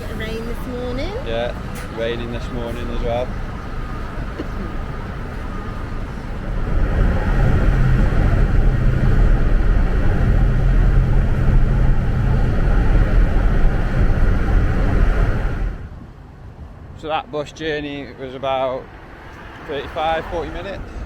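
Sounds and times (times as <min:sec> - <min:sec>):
bus engine: 0:00.0 - 0:21.0
road noise: 0:00.0 - 0:21.0.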